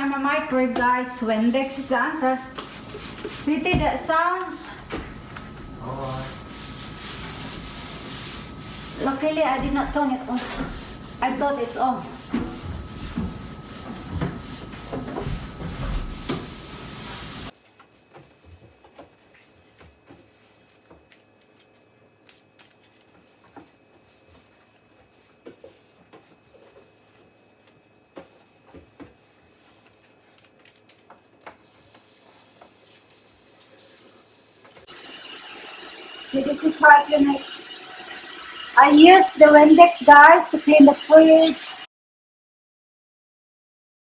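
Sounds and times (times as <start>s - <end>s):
water running from tap: 31.8s - 41.9s.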